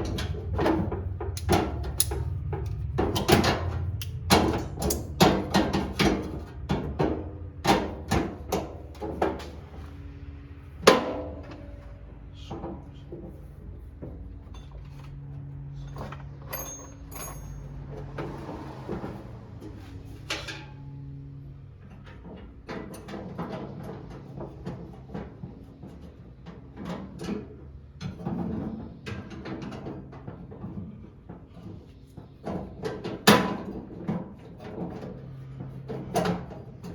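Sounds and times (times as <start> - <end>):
hand tools clicking and clattering: 0.0 - 7.0, 15.8 - 18.2.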